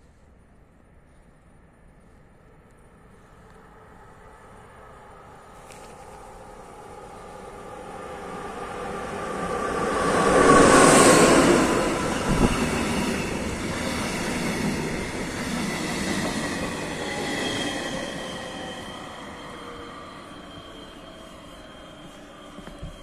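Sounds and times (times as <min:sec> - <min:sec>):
locomotive rushing past: 0:06.3 - 0:23.0
train wheels squealing: 0:07.0 - 0:23.0.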